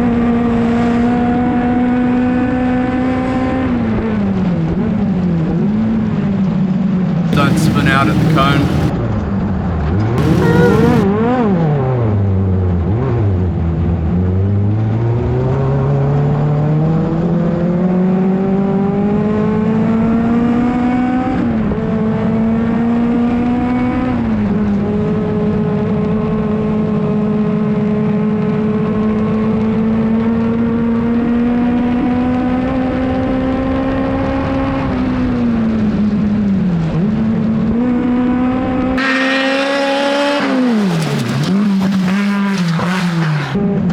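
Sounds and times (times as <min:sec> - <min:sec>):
race car engine revving: 0:07.4 - 0:08.9, 0:10.2 - 0:11.0, 0:39.0 - 0:43.6.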